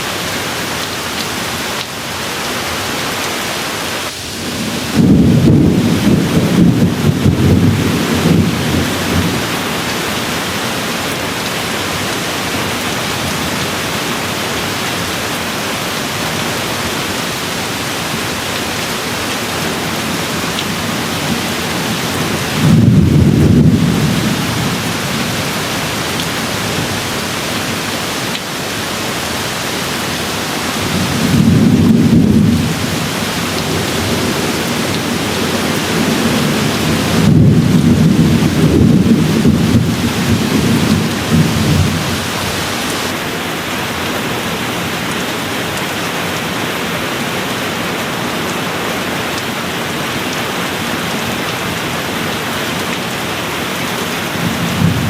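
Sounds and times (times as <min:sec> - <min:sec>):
rain hissing: 0:00.0 - 0:43.3
thunder rumbling: 0:04.3 - 0:09.8, 0:16.6 - 0:27.9, 0:30.2 - 0:43.2, 0:54.4 - 0:55.0.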